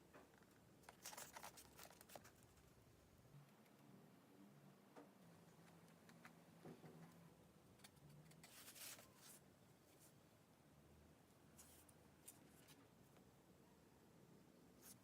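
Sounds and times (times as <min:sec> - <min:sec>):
faint scratching rubs: 0:08.1 - 0:10.2.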